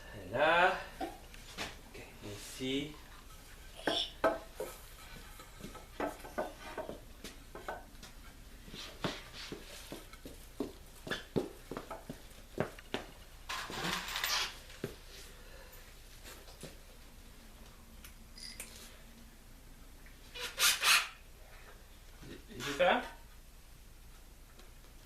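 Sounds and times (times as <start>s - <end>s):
knocks of wood and tools: 3.8s - 4.8s, 5.6s - 8.2s.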